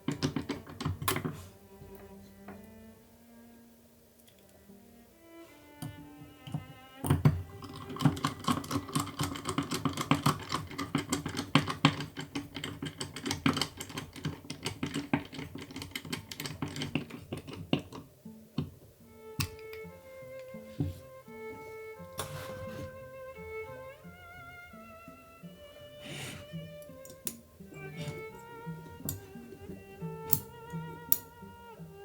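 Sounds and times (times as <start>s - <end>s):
small hard parts clicking and rattling: 0.0s - 1.4s, 5.8s - 18.8s, 26.9s - 31.4s
soft background music: 0.0s - 32.0s.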